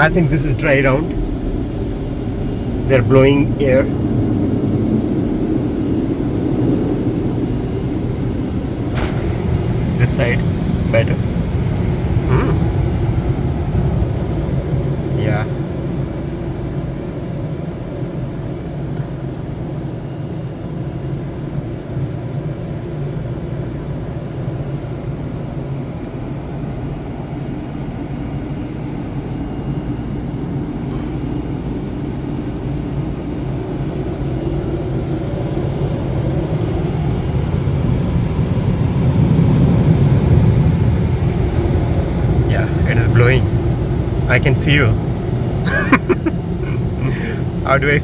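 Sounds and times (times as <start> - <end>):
car wash blowers rushing: 0.0 - 17.4, 35.1 - 48.0.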